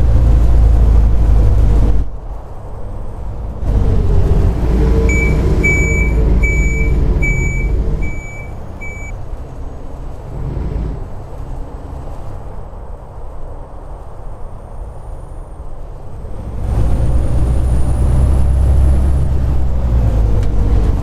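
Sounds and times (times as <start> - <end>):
bus engine running: 0.0 - 21.0
high-pitched warning beeps: 5.1 - 9.2.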